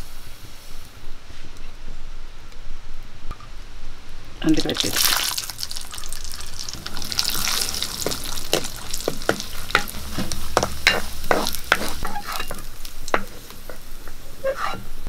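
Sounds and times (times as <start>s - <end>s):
nuts sizzling in oil: 4.1s - 15.0s
spatula scraping metal pan: 6.0s - 15.0s.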